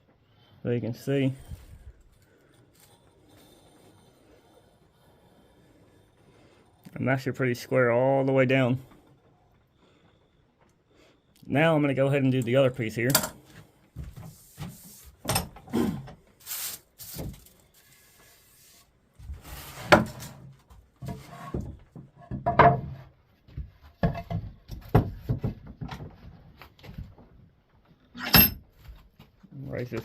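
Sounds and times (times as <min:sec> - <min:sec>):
wood scraping on wood: 0:01.1 - 0:07.6, 0:13.6 - 0:22.4
knocks and clunks of wood and tools: 0:13.1 - 0:16.2, 0:19.2 - 0:29.4.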